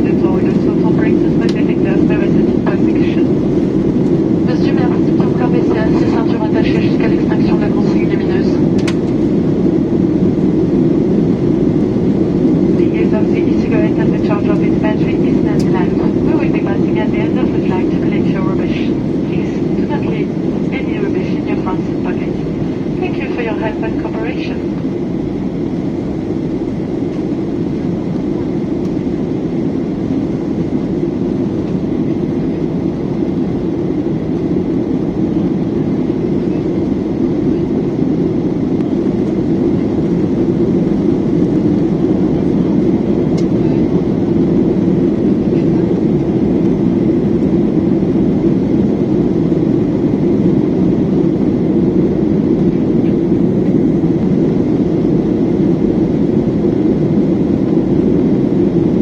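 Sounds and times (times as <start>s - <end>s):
airliner cabin drone: 0.0s - 59.0s.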